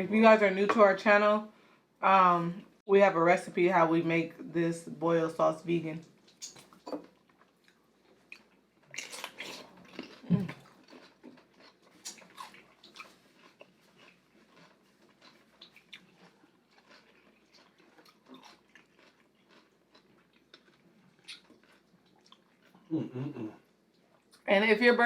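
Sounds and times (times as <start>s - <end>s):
chewing and biting: 6.2s - 22.9s
wet mouth clicks: 6.3s - 6.8s, 21.2s - 21.5s.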